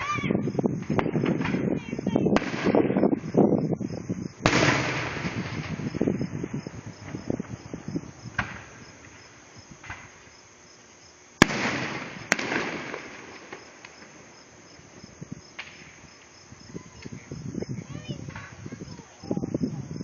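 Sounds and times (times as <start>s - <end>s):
loud firework bangs: 0.0s - 10.4s, 11.4s - 19.6s
faint firework pops: 0.8s - 3.0s, 4.4s - 6.1s, 8.3s - 9.2s, 9.8s - 10.3s, 11.4s - 14.3s, 15.5s - 16.0s.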